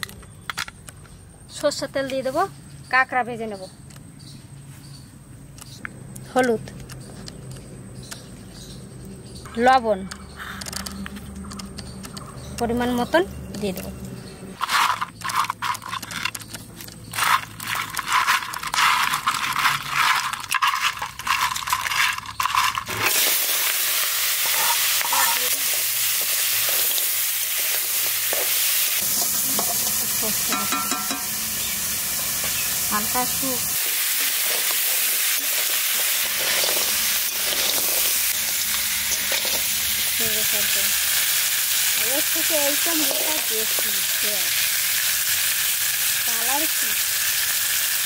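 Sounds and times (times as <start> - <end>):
crab frying in oil sizzling: 17.2 - 48.0.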